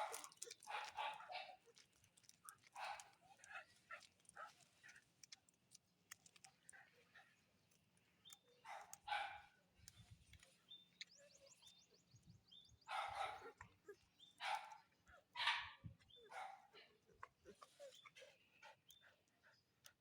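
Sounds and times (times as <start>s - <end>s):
dog barking: 0.0s - 1.8s, 2.7s - 4.6s, 8.6s - 9.6s, 12.8s - 18.4s.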